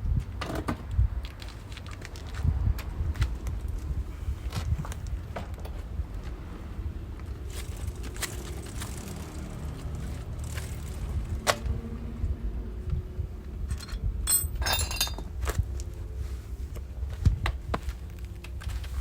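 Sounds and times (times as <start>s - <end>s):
wind rumble on microphone: 0.0s - 19.0s
metal tools clinking and tapping: 13.7s - 15.3s
ringing metallic clatter: 13.7s - 15.3s.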